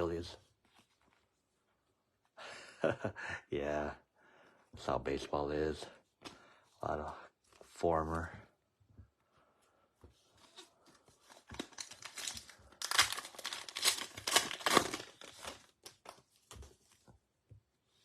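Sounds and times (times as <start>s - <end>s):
foil wrapper tearing and crinkling: 11.5s - 16.6s.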